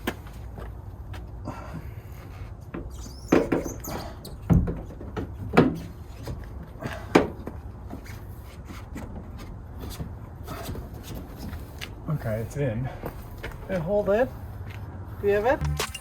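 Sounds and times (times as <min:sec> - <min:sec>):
low handling noise: 0:15.6 - 0:16.0.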